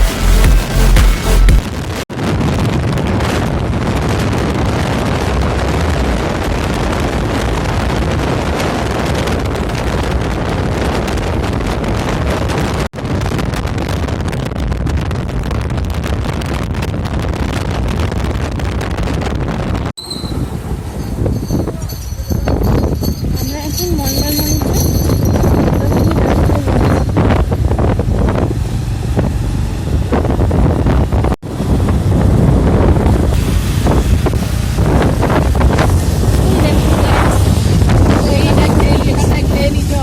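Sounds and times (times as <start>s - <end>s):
motorbike engine and road noise: 0.0s - 40.0s
wind buffeting microphone: 1.6s - 40.0s
short high tones: 20.0s - 27.2s.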